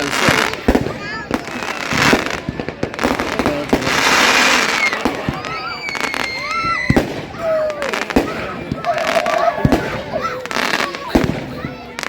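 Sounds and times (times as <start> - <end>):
fireworks crackling and banging: 0.0 - 12.0
high firework whistle: 3.9 - 11.5.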